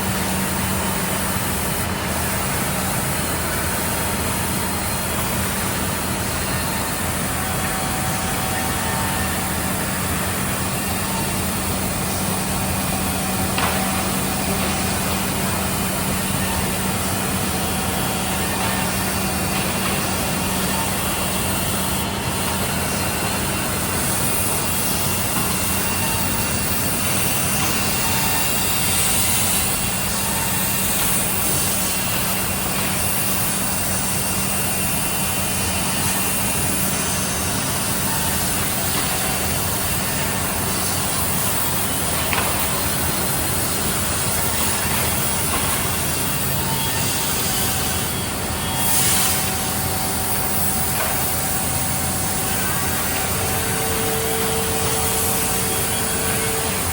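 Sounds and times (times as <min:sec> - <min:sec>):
wood milling machine running: 0:00.0 - 0:56.9.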